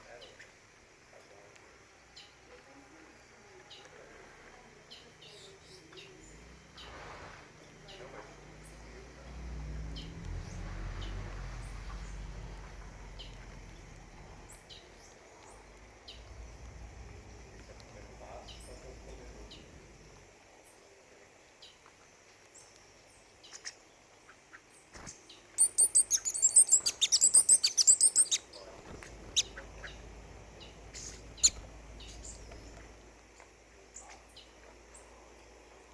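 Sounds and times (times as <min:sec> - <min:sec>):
small birds chirping: 0:01.2 - 0:20.9, 0:21.5 - 0:35.7.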